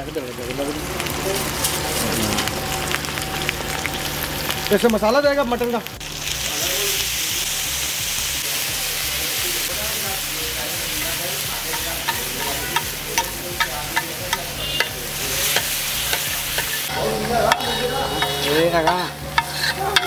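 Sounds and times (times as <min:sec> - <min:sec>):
meat sizzling on griddle: 0:00.0 - 0:20.0
metal spatula striking griddle: 0:11.6 - 0:20.0.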